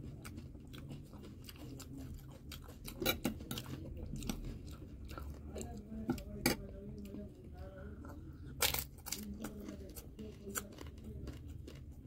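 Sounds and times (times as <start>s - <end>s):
crunching crispy snacks: 8.5s - 12.0s.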